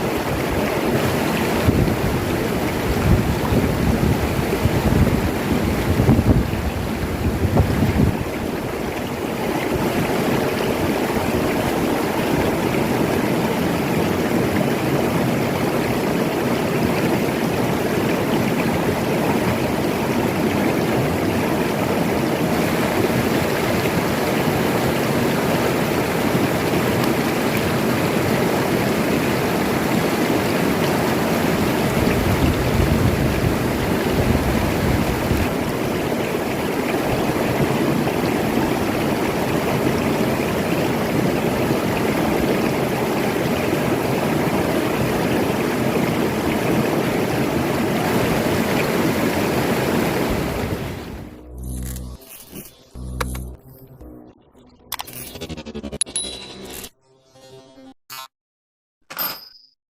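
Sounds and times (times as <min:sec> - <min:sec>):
river water rushing: 0:00.0 - 0:51.4
deep rumble: 0:50.3 - 0:52.3.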